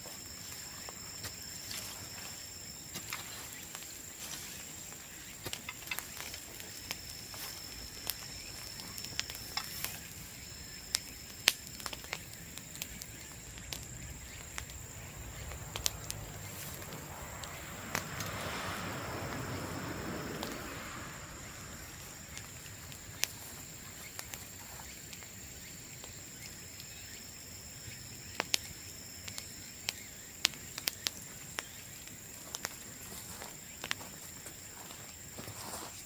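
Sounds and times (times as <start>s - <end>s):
bonfire crackling: 0.0s - 35.8s
rushing fire swell: 5.9s - 24.3s.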